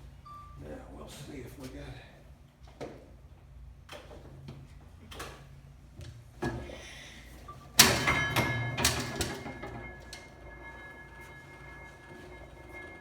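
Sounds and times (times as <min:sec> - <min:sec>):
metallic clattering and ringing: 0:07.8 - 0:13.0.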